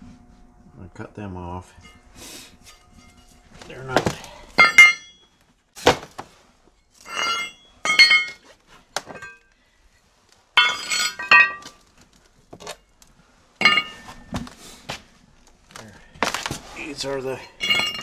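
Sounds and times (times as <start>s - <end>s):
steel brackets clanking together: 0.0s - 5.2s, 7.0s - 9.4s, 10.6s - 11.8s, 13.6s - 15.0s, 16.2s - 18.0s.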